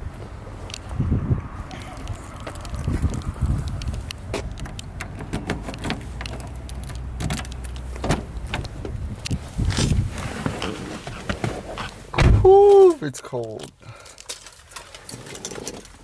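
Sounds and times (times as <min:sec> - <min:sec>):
car engine hum: 0:00.0 - 0:12.6.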